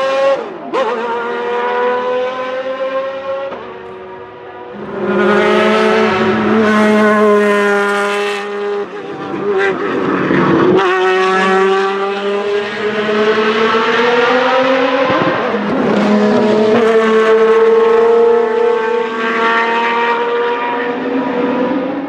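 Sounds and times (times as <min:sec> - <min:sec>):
race car engine accelerating: 0:00.0 - 0:22.0.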